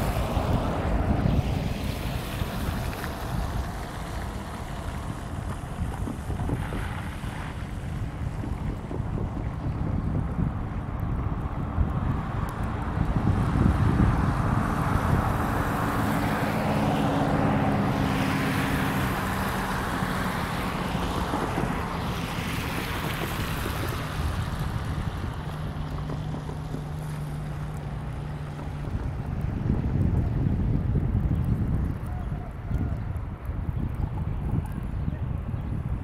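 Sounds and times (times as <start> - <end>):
rushing noise: 0.0 - 8.7
locomotive engine drone: 0.0 - 30.4.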